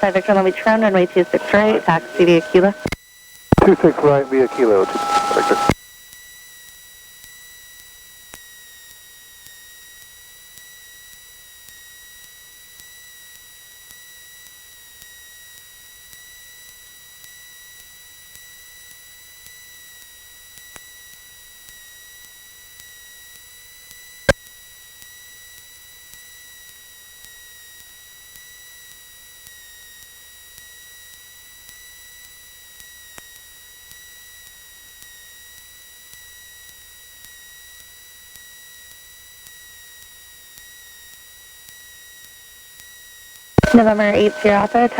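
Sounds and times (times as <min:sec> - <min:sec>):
high-pitched electrical whine: 0:03.6 - 0:05.7.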